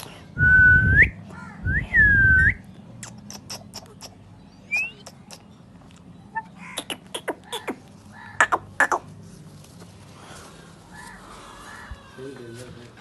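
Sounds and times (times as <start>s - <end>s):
long whistles: 0.4s - 2.6s.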